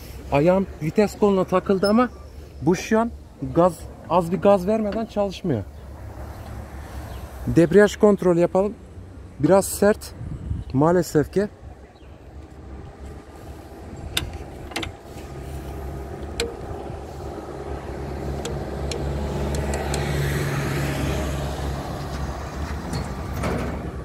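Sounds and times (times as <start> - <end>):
tractor diesel engine running: 12.2 - 24.0
sharp clicks: 18.3 - 20.2.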